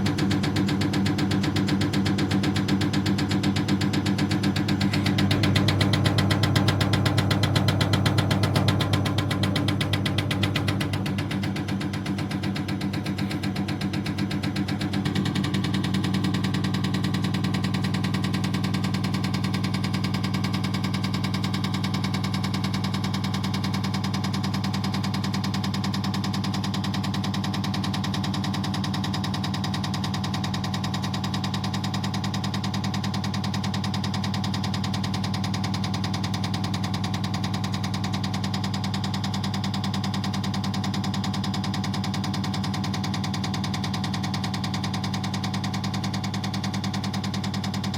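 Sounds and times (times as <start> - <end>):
rapid injector ticking: 0.1 - 19.8
machine hum: 2.3 - 19.4.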